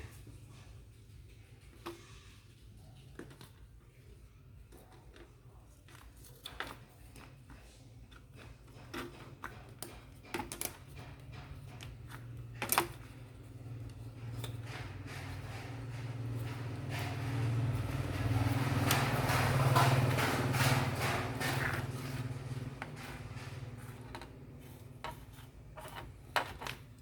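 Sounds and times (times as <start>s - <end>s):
plastic parts clicking and tapping: 3.0s - 3.8s, 4.7s - 27.0s
sharp knocks: 14.6s - 23.8s.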